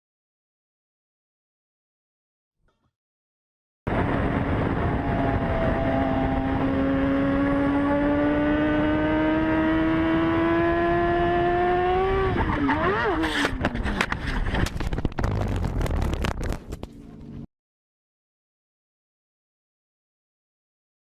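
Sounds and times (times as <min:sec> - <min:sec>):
road noise: 0:03.9 - 0:17.4
vehicle engine humming: 0:03.9 - 0:17.5.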